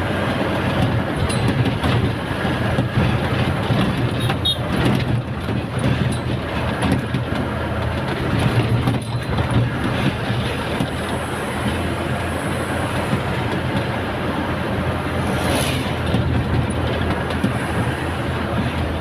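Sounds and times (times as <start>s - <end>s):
road noise: 0.0s - 19.0s
truck engine drone: 0.0s - 19.0s
light rattles and clicks: 0.6s - 12.0s, 16.0s - 19.0s.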